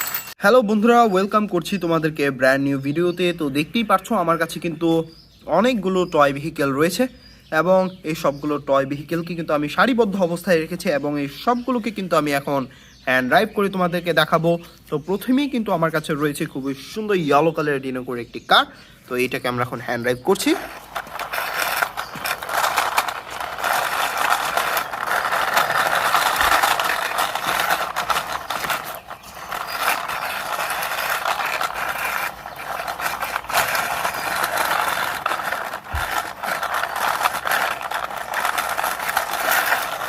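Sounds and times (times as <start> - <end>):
toy car wheels rolling: 0.0 - 0.4, 20.0 - 40.0.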